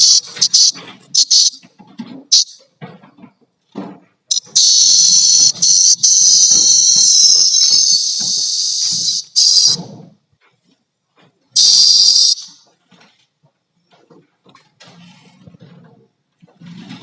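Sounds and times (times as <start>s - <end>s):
cicada buzzing: 0.0s - 1.6s, 2.3s - 2.6s, 4.3s - 9.8s, 11.6s - 12.6s.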